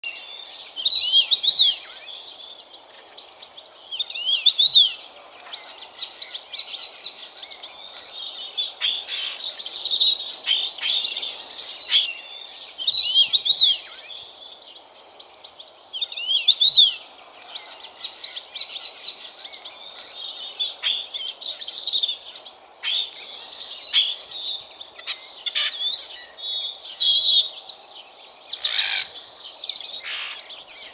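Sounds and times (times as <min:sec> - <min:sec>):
starlings calling: 0:00.4 - 0:14.6, 0:15.8 - 0:30.9
robin warbling song: 0:22.8 - 0:27.8.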